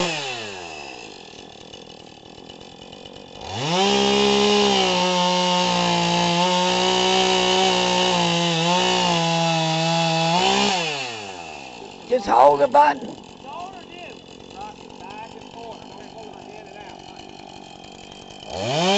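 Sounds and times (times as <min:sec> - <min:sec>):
chainsaw engine revving: 0:00.0 - 0:18.9.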